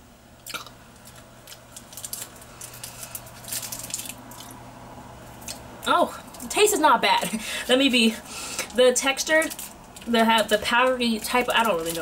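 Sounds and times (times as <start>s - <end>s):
crackly mouth clicks: 0.4s - 0.8s.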